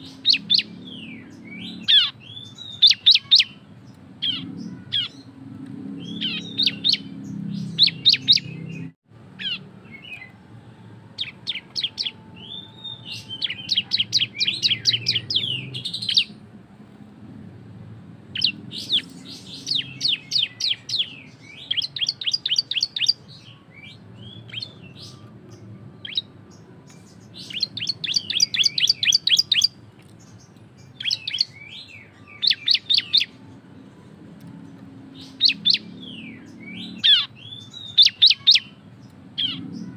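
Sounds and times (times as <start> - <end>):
bird song rapid rattling notes: 24.2 - 33.4.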